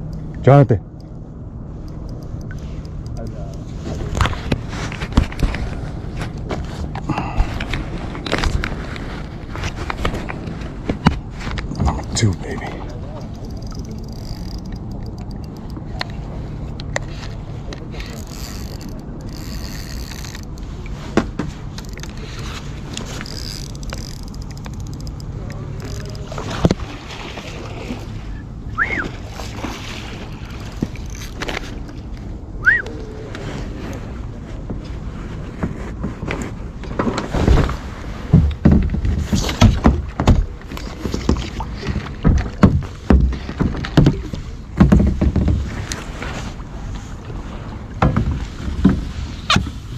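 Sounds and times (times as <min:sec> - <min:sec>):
wind and water rumble: 0:00.0 - 0:49.9
faint clicks: 0:01.8 - 0:04.6, 0:11.5 - 0:16.2, 0:16.8 - 0:20.7, 0:21.8 - 0:26.8
water splashing: 0:09.2 - 0:32.1
hollow knocks against kayak hull: 0:38.3 - 0:40.5, 0:41.2 - 0:45.9, 0:48.0 - 0:49.8.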